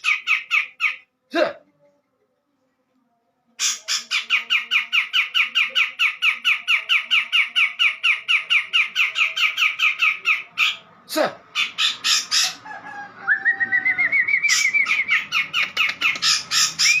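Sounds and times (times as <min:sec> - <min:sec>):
bird giving down-slurred calls: 0:11.5 - 0:12.7, 0:13.7 - 0:17.0.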